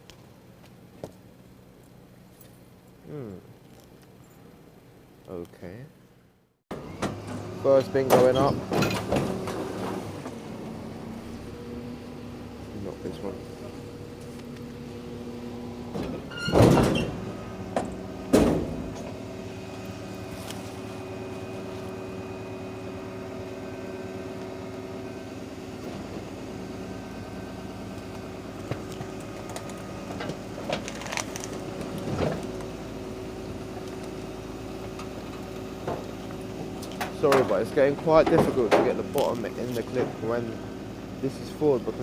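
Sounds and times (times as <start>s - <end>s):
hydraulic bin lift: 6.7s - 11.7s, 13.6s - 32.9s
garbage truck running: 6.7s - 42.0s.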